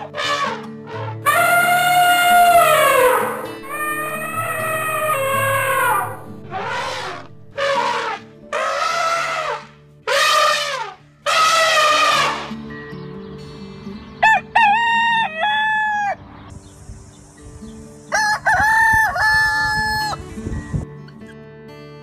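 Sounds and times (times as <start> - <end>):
rooster crowing: 1.3 - 6.2, 14.2 - 16.2, 18.1 - 20.2.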